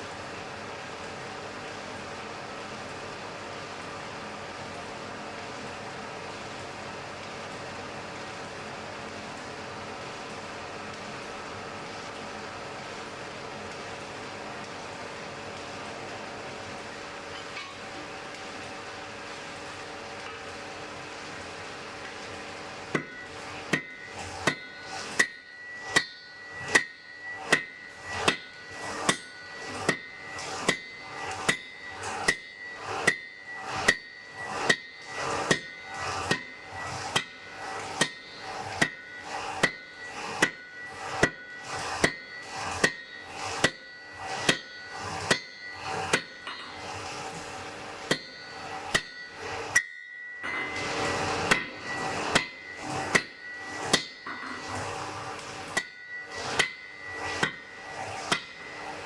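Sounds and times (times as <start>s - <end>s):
hammer striking anvil: 22.9s - 47.4s, 48.0s - 59.0s.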